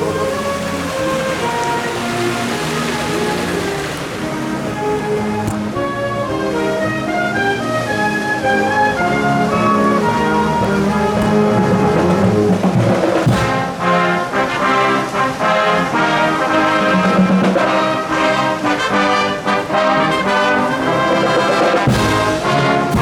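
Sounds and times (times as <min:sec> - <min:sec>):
brass section playing chords: 0:00.0 - 0:23.0
drum hits: 0:11.2 - 0:13.8, 0:21.2 - 0:23.0.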